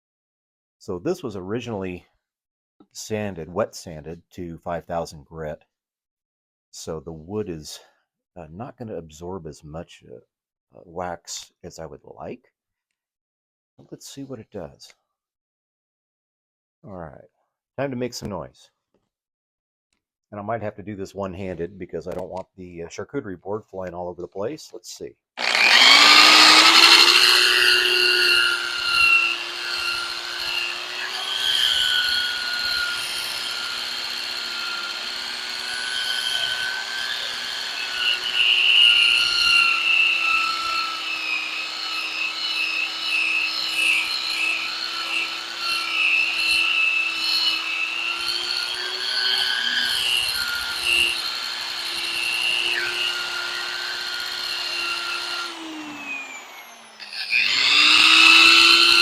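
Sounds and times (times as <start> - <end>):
buffing wheel motor: 25.4 - 59.0.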